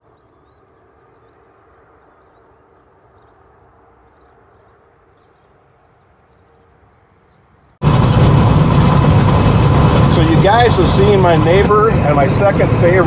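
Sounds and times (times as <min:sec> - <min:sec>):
distant engine drone: 0:07.8 - 0:13.0.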